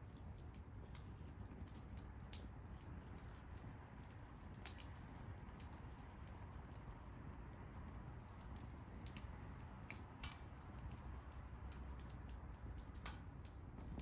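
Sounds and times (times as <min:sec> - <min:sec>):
bonfire crackling: 0:00.0 - 0:14.0
sharp pops of fire: 0:08.3 - 0:14.0.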